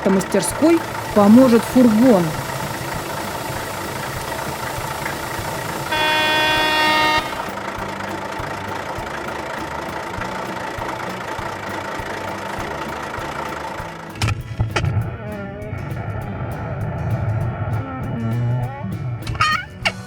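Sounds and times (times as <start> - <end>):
vehicle engine running: 0.0 - 20.0
horn honk: 2.4 - 9.2.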